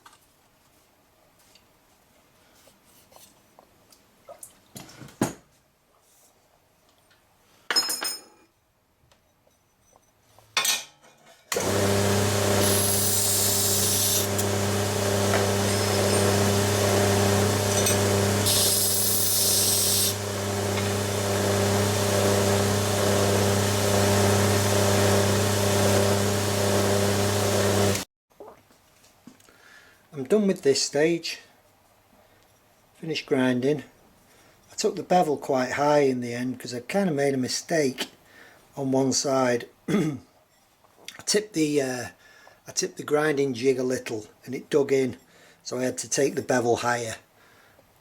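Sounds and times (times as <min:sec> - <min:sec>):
belt grinder motor humming: 0:11.5 - 0:28.1.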